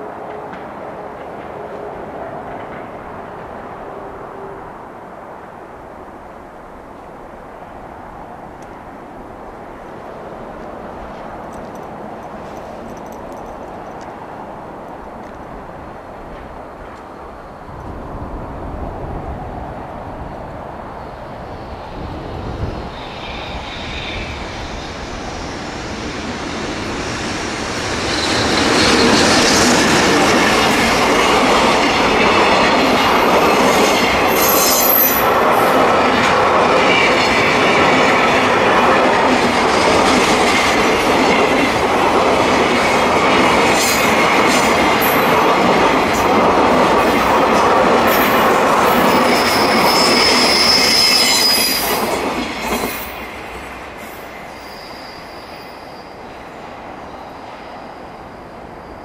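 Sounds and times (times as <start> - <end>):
freight train wagons passing: 0.0 - 59.0
high wheel squeals: 22.6 - 31.4, 32.2 - 35.7, 48.1 - 56.4.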